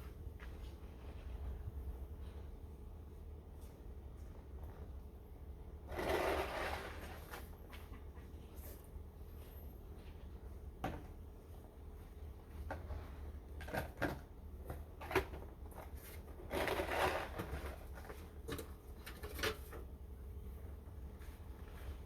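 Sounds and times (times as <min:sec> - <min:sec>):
low steady hum: 0:00.0 - 0:22.0
shovel scraping snow: 0:05.9 - 0:07.4, 0:16.5 - 0:17.8.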